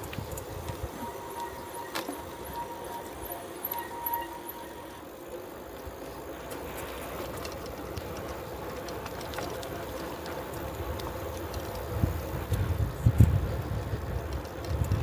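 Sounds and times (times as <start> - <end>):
bicycle tyre and wind noise: 0.0 - 15.0
light ticks: 7.3 - 15.0.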